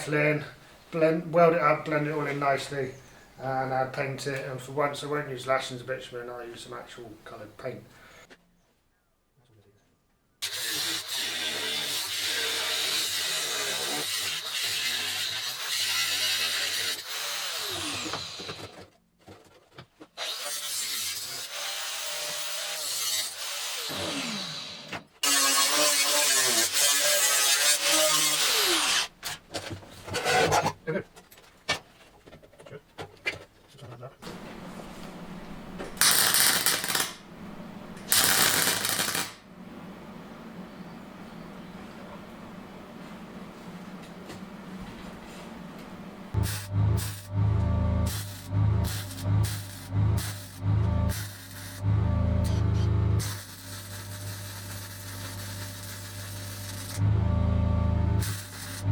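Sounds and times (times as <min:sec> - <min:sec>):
power tool cutting steel: 0:10.4 - 0:18.8, 0:20.2 - 0:29.2, 0:36.0 - 0:37.2, 0:38.0 - 0:39.4, 0:46.4 - 0:58.9
welding crackle: 0:34.2 - 0:39.5, 0:46.4 - 0:47.3, 0:48.1 - 0:51.8, 0:53.2 - 0:57.0, 0:58.2 - 0:58.9.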